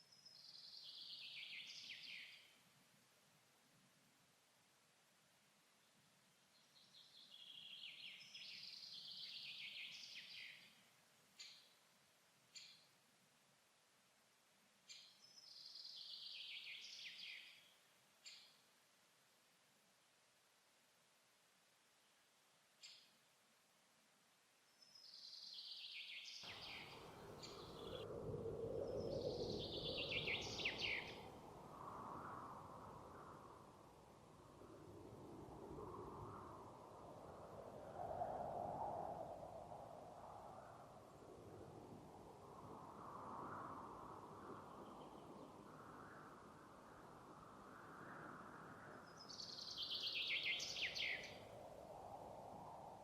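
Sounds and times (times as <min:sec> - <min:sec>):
songbird singing: 0:00.0 - 0:02.6, 0:06.5 - 0:11.9, 0:12.5 - 0:13.0, 0:14.8 - 0:18.7, 0:24.7 - 0:31.4, 0:48.8 - 0:51.5
songbird chattering song: 0:00.1 - 0:02.5, 0:24.8 - 0:28.0, 0:29.0 - 0:31.3, 0:49.1 - 0:51.4.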